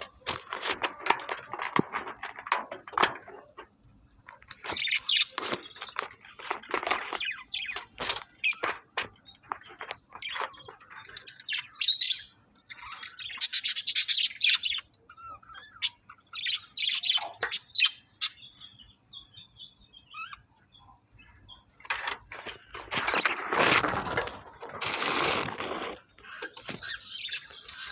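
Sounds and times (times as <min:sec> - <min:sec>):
budgerigars chirping: 0:09.8 - 0:22.2, 0:26.2 - 0:27.9.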